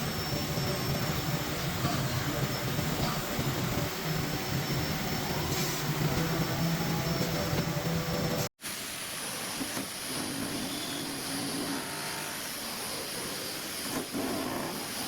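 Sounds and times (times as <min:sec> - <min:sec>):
rushing machine noise: 0:00.0 - 0:08.5.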